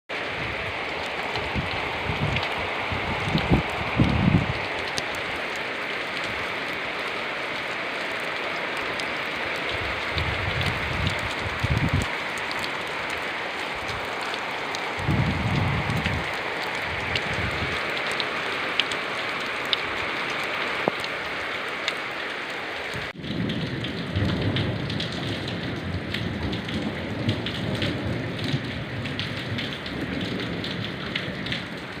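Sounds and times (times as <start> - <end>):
raindrops pattering on surfaces: 0.1 - 32.0
steady rain falling: 0.1 - 32.0
low rumbles: 14.9 - 17.7.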